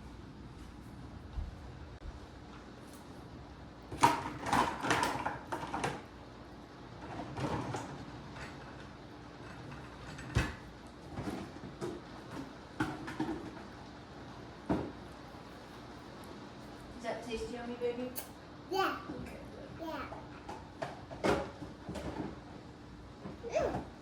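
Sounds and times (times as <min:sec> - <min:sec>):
objects clattering and knocking: 0:03.9 - 0:06.1, 0:07.0 - 0:13.8, 0:20.1 - 0:22.6.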